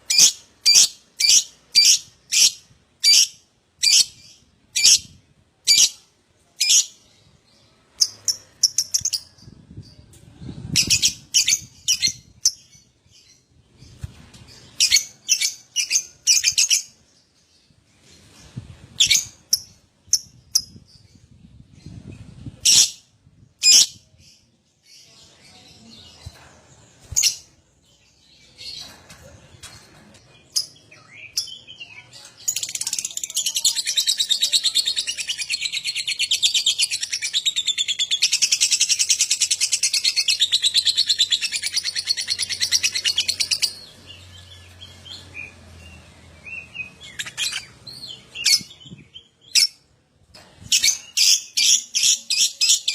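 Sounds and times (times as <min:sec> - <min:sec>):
lovebird chirps and squawks: 0:05.7 - 0:06.0, 0:22.6 - 0:23.0, 0:47.1 - 0:48.8.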